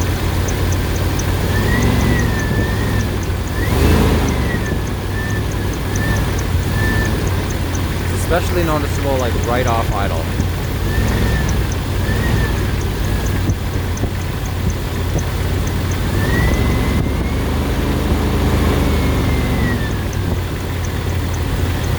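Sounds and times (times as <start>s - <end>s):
car engine revving: 0.0s - 21.9s
high whistle following revs: 0.4s - 14.8s, 15.8s - 21.4s.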